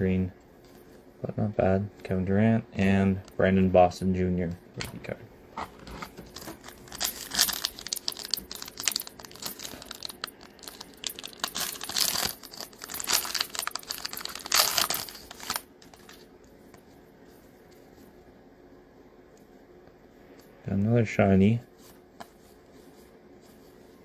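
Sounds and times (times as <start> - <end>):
plastic foil wrapper crinkling: 6.2 - 16.1.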